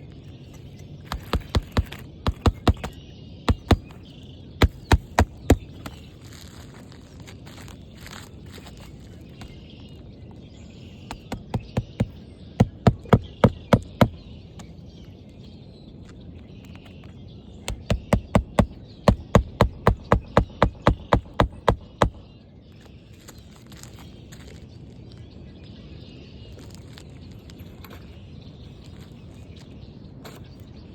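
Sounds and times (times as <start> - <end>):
hammer driving nails: 1.1 - 4.0, 4.6 - 5.9, 11.1 - 14.2, 17.7 - 22.2.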